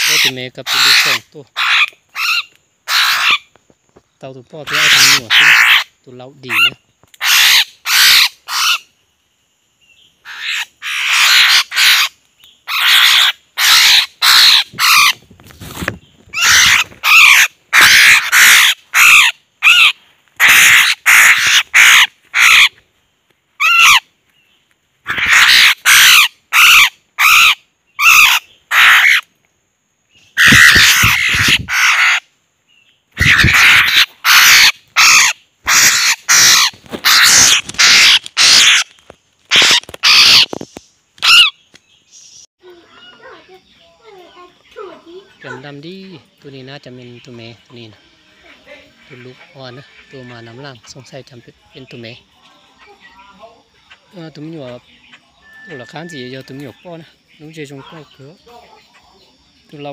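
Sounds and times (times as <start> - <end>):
bird giving harsh raspy calls: 0.0 - 3.5, 4.6 - 9.0, 10.2 - 22.8, 23.6 - 24.1, 25.0 - 29.3, 30.2 - 32.4, 33.1 - 41.7.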